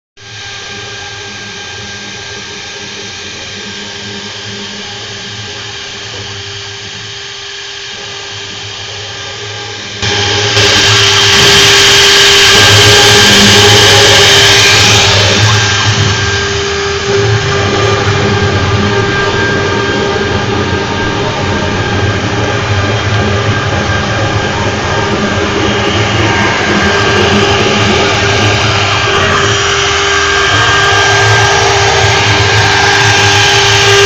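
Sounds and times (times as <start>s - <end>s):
lathe motor whine: 0.2s - 34.0s
loud hissing machine noise: 0.2s - 34.0s.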